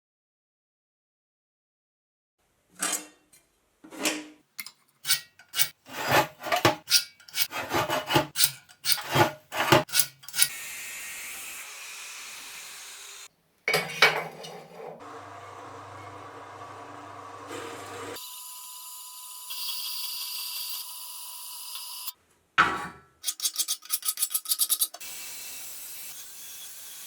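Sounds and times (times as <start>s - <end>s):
rasping sawing strokes: 5.0s - 10.6s.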